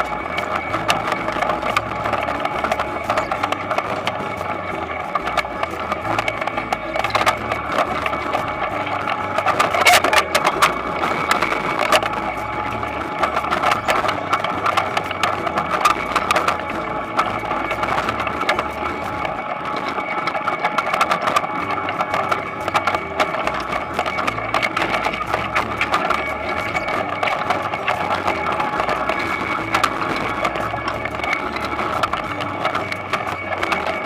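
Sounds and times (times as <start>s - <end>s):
harvester machine hum: 0.0s - 34.0s
rattling and clicking: 0.0s - 34.0s.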